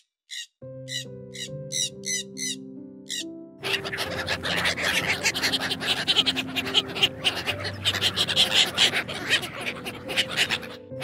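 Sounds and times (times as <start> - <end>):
soft background music: 0.3 - 11.0
ducks quacking: 3.1 - 11.0.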